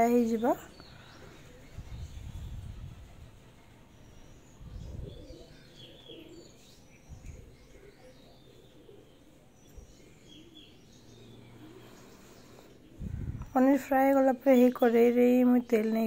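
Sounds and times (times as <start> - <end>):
faint birds chirping: 0.0 - 16.0
low cooing calls: 0.5 - 13.5.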